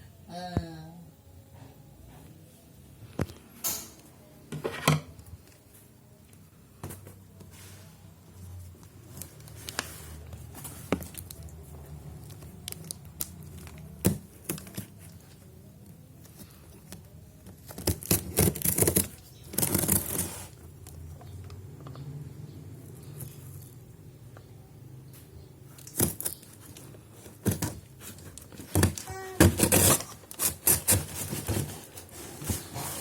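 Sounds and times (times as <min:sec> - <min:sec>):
packaging tearing and crinkling: 0:17.5 - 0:20.6, 0:25.8 - 0:33.0.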